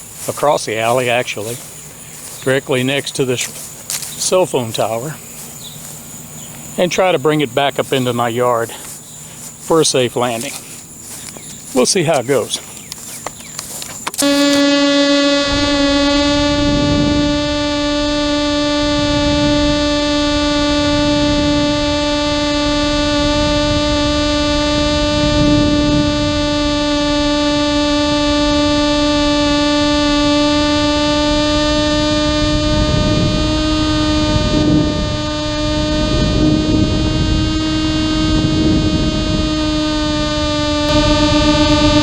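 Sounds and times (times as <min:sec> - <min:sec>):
low uneven rumble: 0:00.0 - 0:14.3
steady droning tone: 0:00.0 - 0:42.0.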